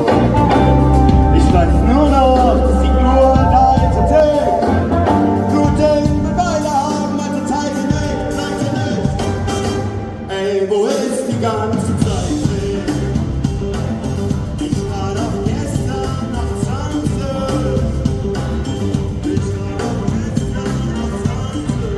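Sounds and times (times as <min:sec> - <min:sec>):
person singing: 0:00.0 - 0:18.4
live rock band playing: 0:00.0 - 0:21.9.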